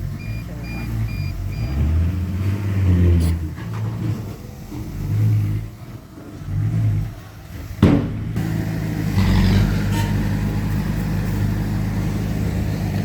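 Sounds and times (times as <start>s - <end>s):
heavy diesel engine under load: 0.0s - 13.0s
sharp knock: 7.8s - 8.4s.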